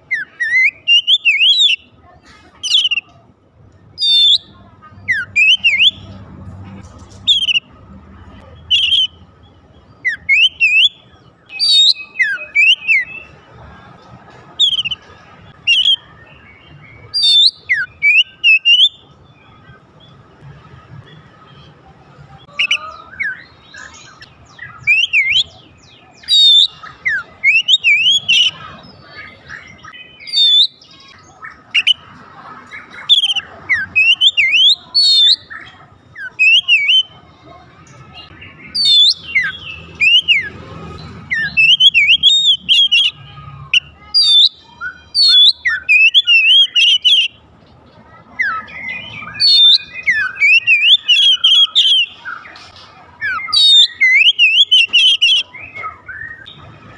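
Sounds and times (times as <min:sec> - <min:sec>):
bird singing whistled phrases: 0:00.1 - 0:01.9, 0:02.6 - 0:03.1, 0:04.0 - 0:06.1, 0:07.3 - 0:07.7, 0:08.6 - 0:09.2, 0:10.0 - 0:13.3, 0:14.6 - 0:15.0, 0:15.6 - 0:19.5, 0:22.5 - 0:32.0, 0:32.9 - 0:37.2, 0:38.2 - 0:40.5, 0:41.3 - 0:47.4, 0:48.4 - 0:52.6, 0:53.2 - 0:56.6.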